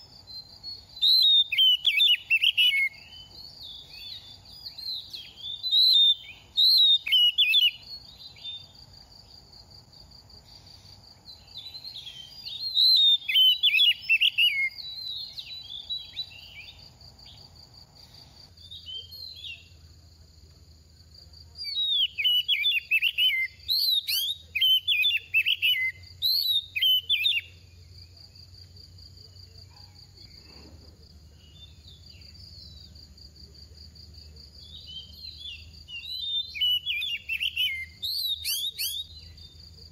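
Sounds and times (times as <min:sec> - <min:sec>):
bird singing whistled phrases: 0:00.3 - 0:08.7, 0:11.3 - 0:16.8, 0:18.6 - 0:19.7, 0:21.6 - 0:27.7, 0:34.6 - 0:39.6.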